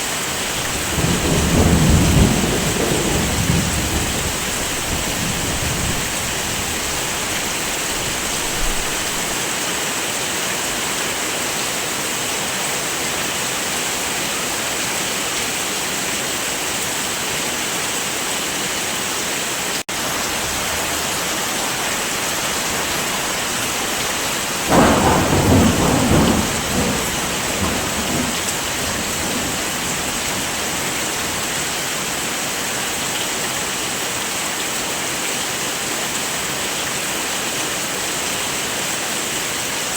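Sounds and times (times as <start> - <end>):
heavy rain: 0.0 - 39.9
thunder rumble: 0.5 - 9.4, 22.5 - 31.5.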